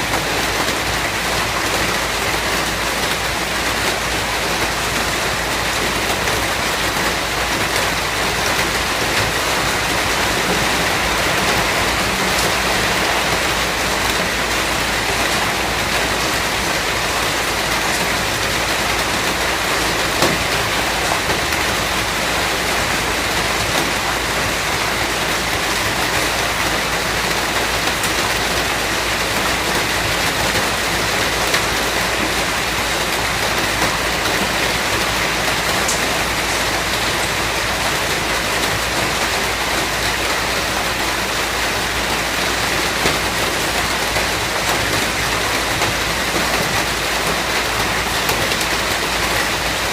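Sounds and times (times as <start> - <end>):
heavy rain falling: 0.0 - 49.9
raindrop ticks: 35.7 - 36.0.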